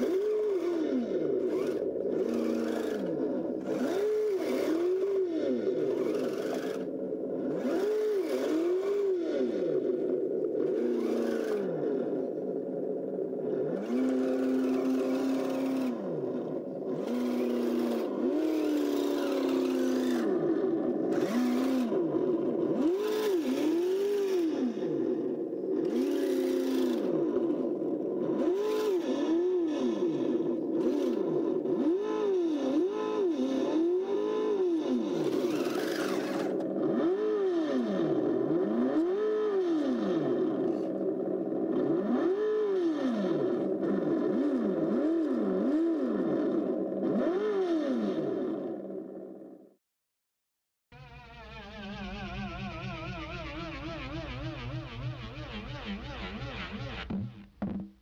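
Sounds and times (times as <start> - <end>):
simulated engine revving: 0.0 - 49.8, 50.9 - 57.8
rattling scraping drive noise: 35.1 - 36.8.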